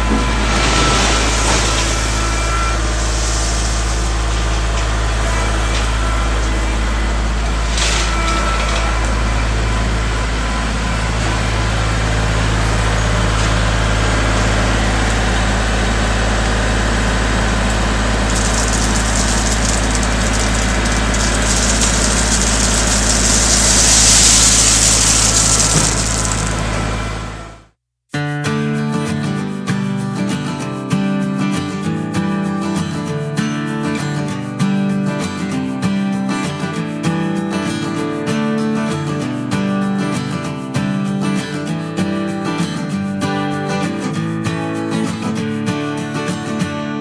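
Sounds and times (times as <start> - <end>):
rushing hissing noise: 0.0 - 15.0, 16.9 - 26.9
tractor diesel engine running: 0.0 - 27.7.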